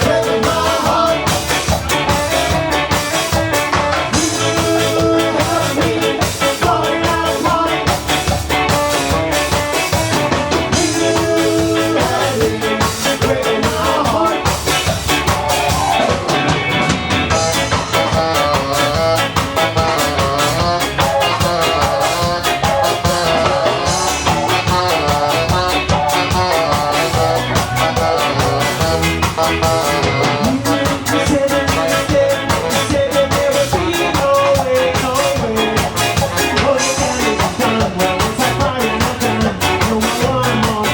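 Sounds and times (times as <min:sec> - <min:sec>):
person singing: 0:00.0 - 0:16.7, 0:17.3 - 0:40.9
ska band playing live: 0:00.0 - 0:40.9.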